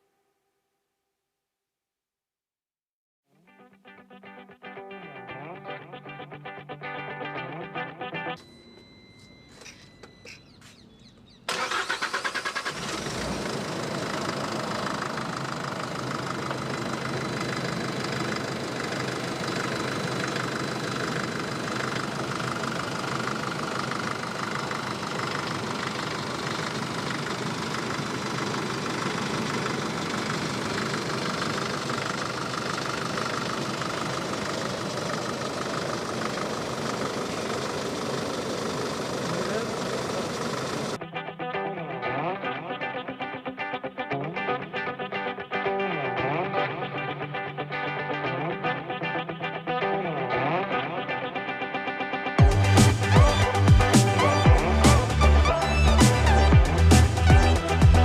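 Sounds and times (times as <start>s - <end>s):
diesel engine starting and idling: 8.4s - 41.0s, 52.4s - 58.0s.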